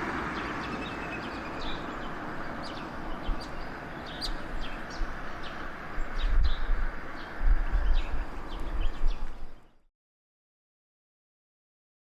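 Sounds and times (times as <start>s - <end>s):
steady outdoor hiss: 0.0s - 9.9s
bird chirps: 0.3s - 9.9s.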